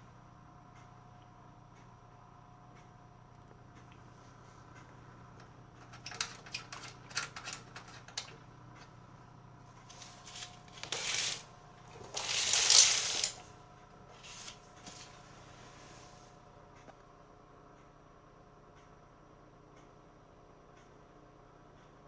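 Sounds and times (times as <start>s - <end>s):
rustling and scraping: 9.8s - 16.3s.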